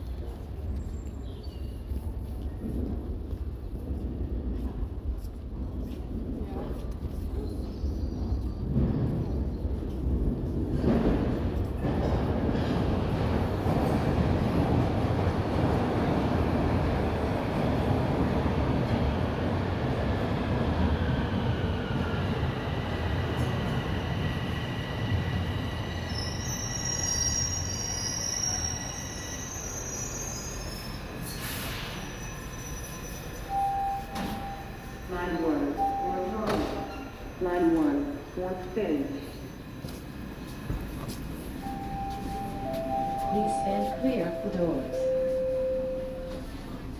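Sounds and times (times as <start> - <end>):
subway train rumble: 0.0 - 46.9
high wheel squeals: 26.1 - 35.1.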